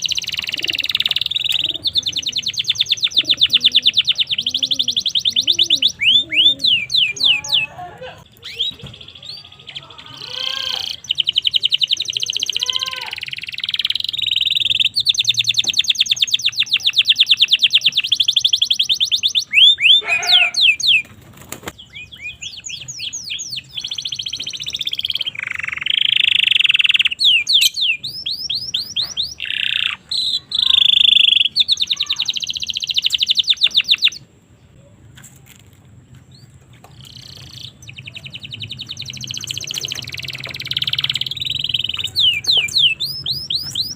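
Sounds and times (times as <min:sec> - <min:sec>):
canary singing trills: 0:00.0 - 0:34.8, 0:36.3 - 0:43.9.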